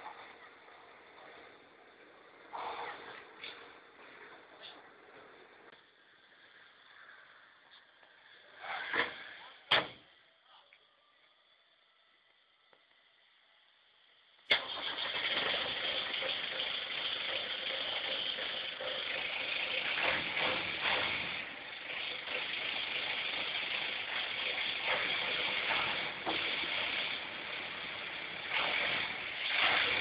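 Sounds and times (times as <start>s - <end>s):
off-road vehicle engine starting: 0.0s - 5.8s, 14.4s - 30.0s.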